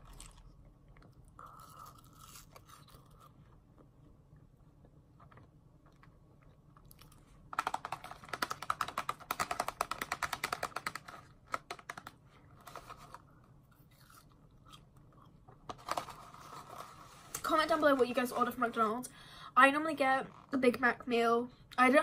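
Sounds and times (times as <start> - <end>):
fries crunching and chewing: 0.0 - 3.9, 12.7 - 16.6.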